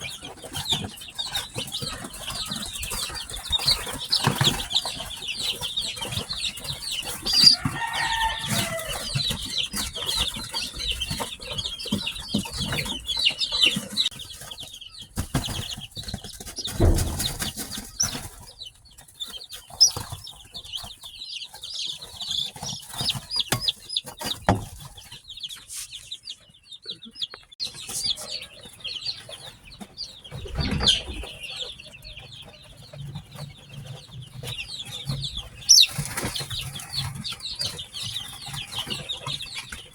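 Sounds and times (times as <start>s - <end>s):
chicks peeping: 0.0s - 39.9s
brief thumps or rustles: 15.2s - 18.4s.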